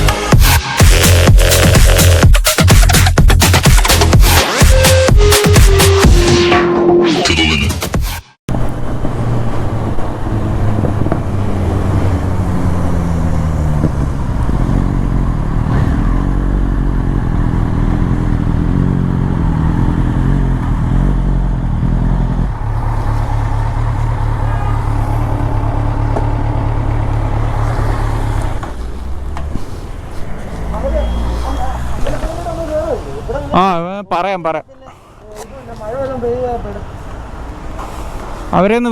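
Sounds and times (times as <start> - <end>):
motorcycle engine running: 13.0 - 29.4.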